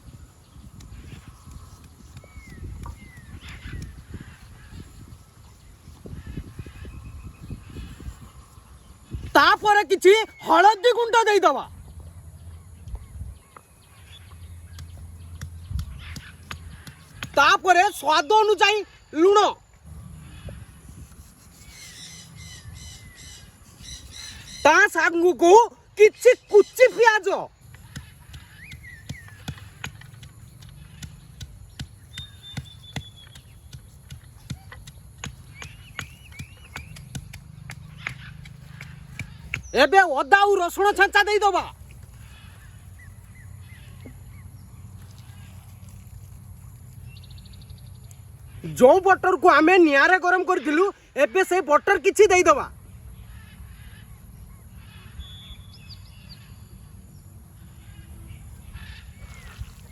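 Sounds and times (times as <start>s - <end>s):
sharp taps and knocks: 14.7s - 17.4s, 27.7s - 39.7s
bird calling: 21.5s - 45.6s.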